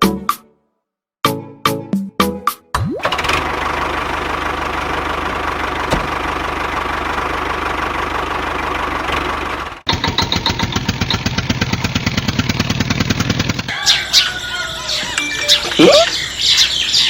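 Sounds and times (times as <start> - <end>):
small engine running: 3.0 - 15.0.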